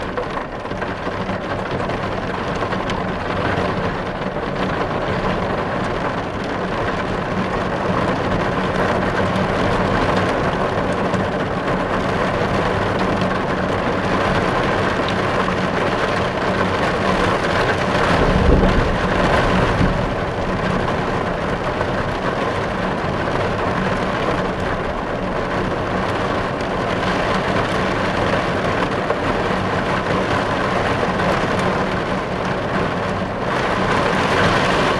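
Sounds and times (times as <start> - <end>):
heavy rain drumming on car: 0.0 - 34.9
low rumble: 17.8 - 22.3.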